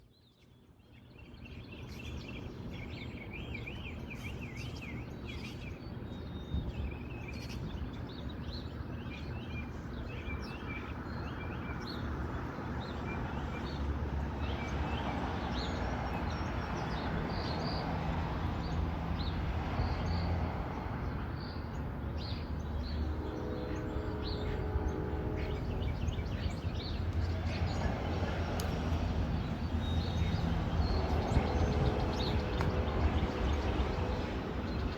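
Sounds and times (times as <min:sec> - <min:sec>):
small birds chirping: 0:14.4 - 0:34.9
low outdoor rumble: 0:16.4 - 0:34.9.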